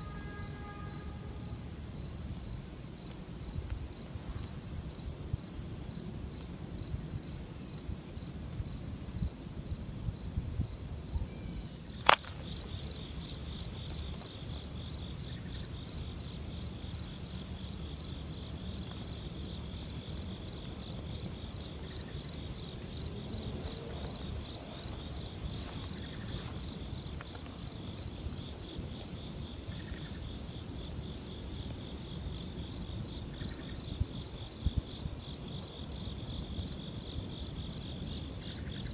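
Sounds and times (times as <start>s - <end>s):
insect high-pitched trill: 0.0s - 5.1s, 11.1s - 38.9s
rhythmic insect chirping: 0.0s - 38.9s
sharp click: 12.0s - 12.4s.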